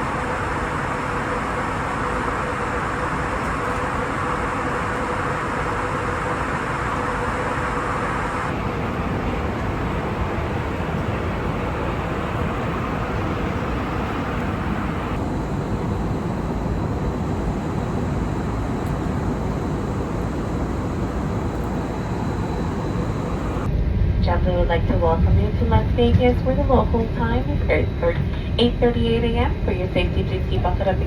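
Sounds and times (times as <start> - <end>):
airliner cabin engine rumble: 0.0 - 31.0.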